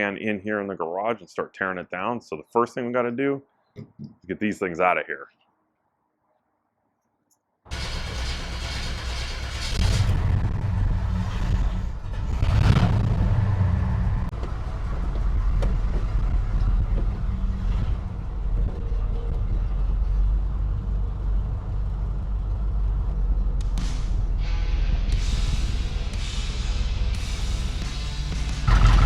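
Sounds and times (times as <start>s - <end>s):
car engine idling: 7.7s - 24.5s, 28.2s - 29.0s.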